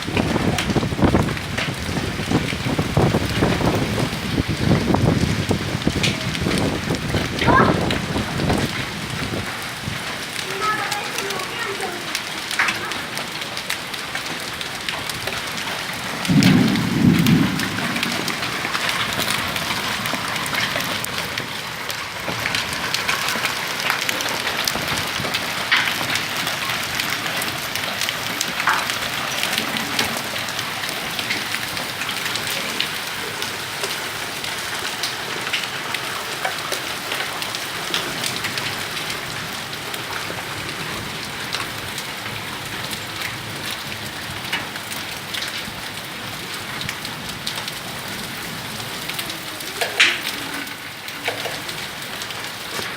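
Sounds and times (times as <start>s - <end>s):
hail and rain pattering: 0.0s - 52.9s
low rumble: 16.3s - 19.8s.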